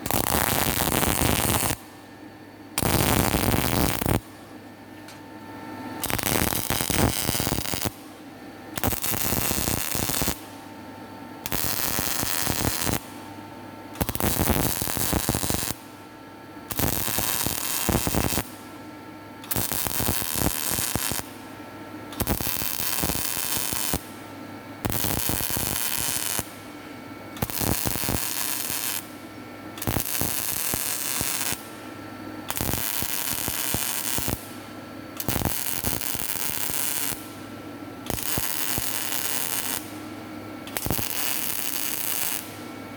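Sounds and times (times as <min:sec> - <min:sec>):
arc welding crackle: 0:00.0 - 0:01.9, 0:02.8 - 0:04.4, 0:06.0 - 0:08.2, 0:08.8 - 0:10.7, 0:11.4 - 0:13.3, 0:13.9 - 0:16.0, 0:16.7 - 0:18.8, 0:19.4 - 0:21.6, 0:22.2 - 0:26.8, 0:27.4 - 0:31.9, 0:32.5 - 0:37.5, 0:38.1 - 0:40.1, 0:40.7 - 0:42.7.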